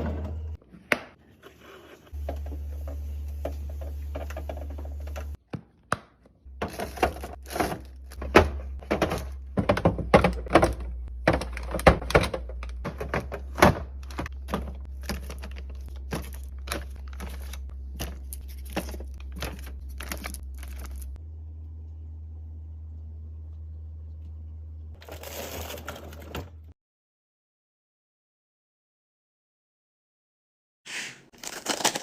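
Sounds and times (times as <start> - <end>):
containers clacking and thunking: 2.1 - 5.5, 6.5 - 21.2, 25.0 - 26.7
low steady hum: 6.5 - 26.7.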